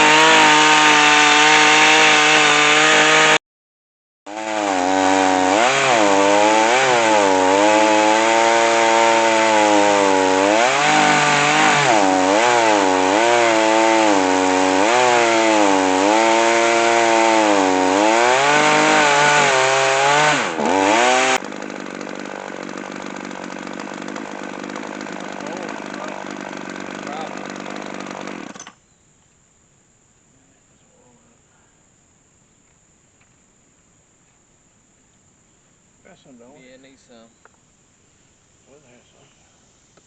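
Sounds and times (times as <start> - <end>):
chainsaw cutting through log: 0.0 - 3.4, 4.3 - 28.7.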